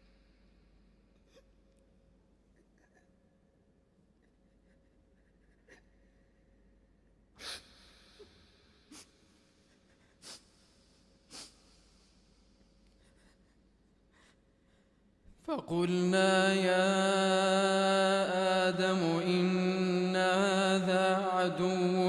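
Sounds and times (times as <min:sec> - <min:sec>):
short sharp breaths or sniffs: 0:07.4 - 0:12.8.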